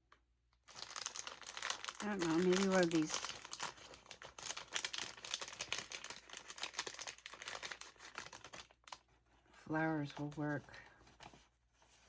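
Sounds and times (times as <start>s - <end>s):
paper rustling and crinkling: 0.6s - 12.0s.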